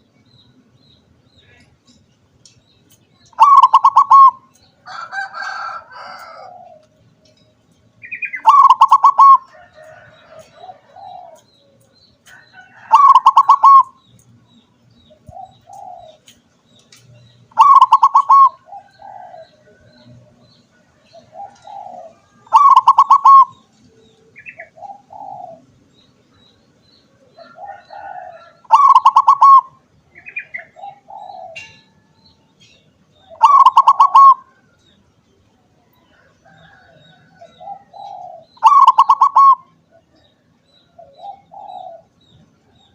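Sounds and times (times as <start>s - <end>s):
dove trilling coo: 3.3s - 7.0s, 8.0s - 14.0s, 15.1s - 16.3s, 17.5s - 25.7s, 27.1s - 32.3s, 33.2s - 34.8s, 35.8s - 42.9s
soft low dove coos: 21.0s - 25.7s, 35.8s - 40.2s.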